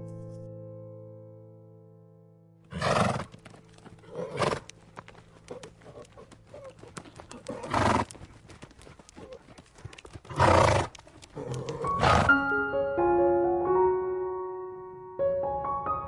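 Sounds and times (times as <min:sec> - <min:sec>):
horse calling: 0:02.7 - 0:12.4
light clicks: 0:04.6 - 0:10.2, 0:10.8 - 0:11.9.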